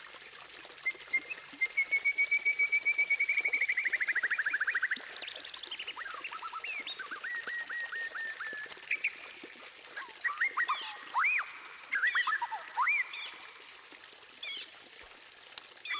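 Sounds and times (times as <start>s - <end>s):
swooping bird whistles: 0.8s - 9.1s, 10.0s - 13.5s
bird singing whistles: 0.8s - 9.2s, 10.0s - 13.5s.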